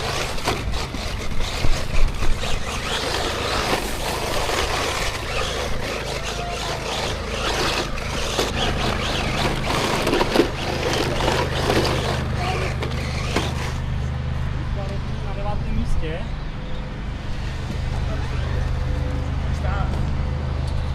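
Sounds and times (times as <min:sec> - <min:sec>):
toy car motor revving: 0:00.0 - 0:13.9, 0:17.3 - 0:19.2
wheels crunching on ground: 0:00.0 - 0:16.0.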